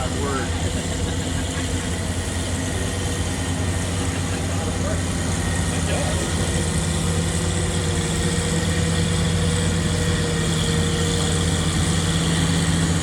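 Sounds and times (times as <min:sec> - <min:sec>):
tractor engine idling: 0:00.0 - 0:13.0.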